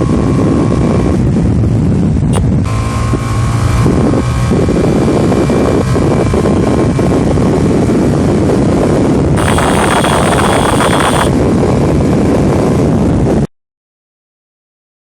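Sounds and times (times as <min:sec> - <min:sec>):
motorcycle engine running: 0:00.0 - 0:08.5, 0:09.4 - 0:11.4
wind rushing over microphone: 0:00.0 - 0:13.5.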